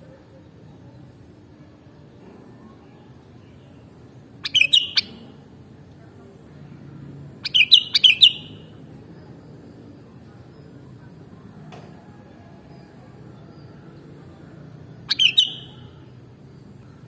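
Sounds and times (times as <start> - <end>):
bird singing quick notes: 4.4 - 5.2, 7.4 - 8.6, 15.1 - 16.0.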